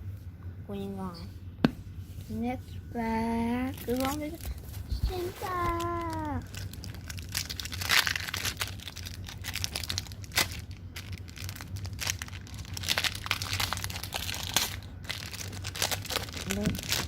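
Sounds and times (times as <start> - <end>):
foil wrapper tearing and crinkling: 5.1 - 17.0.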